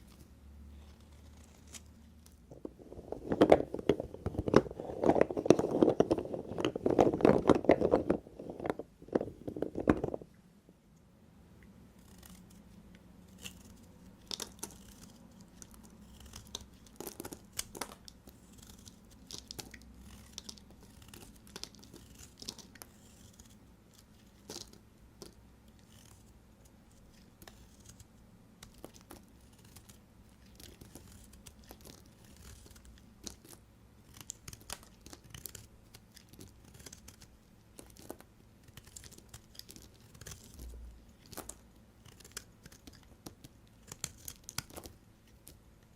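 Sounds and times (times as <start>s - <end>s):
clicks and scrapes of soap: 13.3s - 26.2s, 28.6s - 45.6s
knife crunching through soap: 13.3s - 26.2s, 28.6s - 45.6s.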